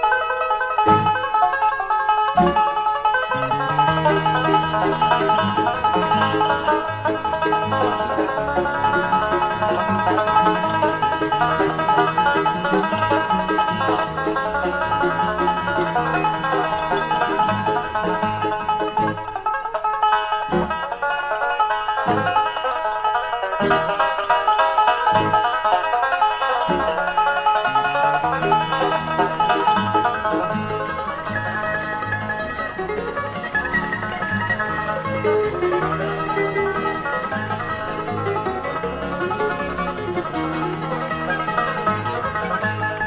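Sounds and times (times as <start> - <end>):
banjo playing lead: 0.0 - 43.0
guitar: 0.0 - 43.0
mandolin: 0.0 - 43.0.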